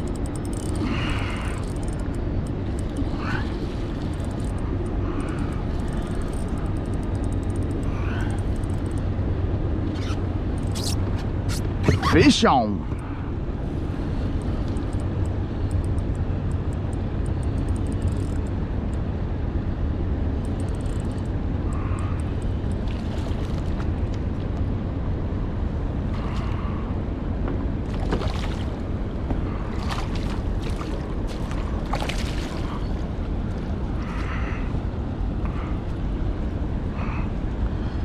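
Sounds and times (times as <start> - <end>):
faint clicks: 0.0 - 9.1, 14.3 - 19.0, 20.4 - 24.6
water moving around kayak: 0.0 - 12.4, 20.5 - 24.9, 27.4 - 36.4
wind rumble on microphone: 12.8 - 38.0
water splashing: 27.8 - 33.3.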